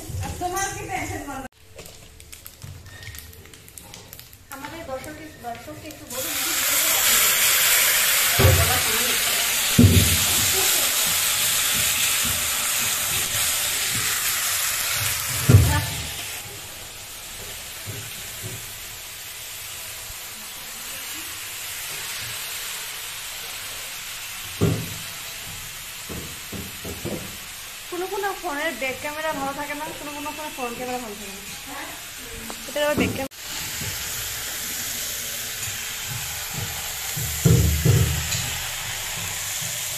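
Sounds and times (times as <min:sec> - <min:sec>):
food sizzling in a pan: 0:00.0 - 0:39.9
ladle knocking on pan: 0:36.0 - 0:39.8.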